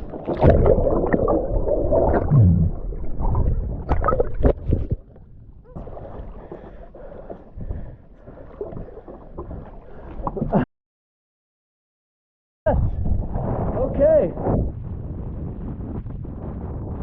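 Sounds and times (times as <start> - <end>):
water splashing around boat: 0.0 - 10.6.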